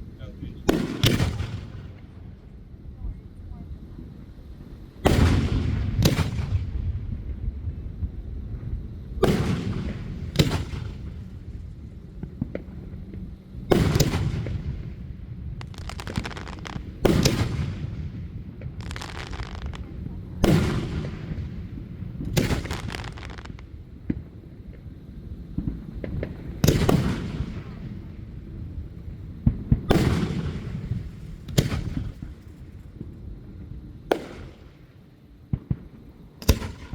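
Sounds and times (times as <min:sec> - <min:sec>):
fireworks bangs: 0:00.7 - 0:02.0, 0:09.2 - 0:24.9, 0:25.5 - 0:28.1, 0:29.0 - 0:33.2
fireworks crackling: 0:08.9 - 0:28.1, 0:28.8 - 0:33.2.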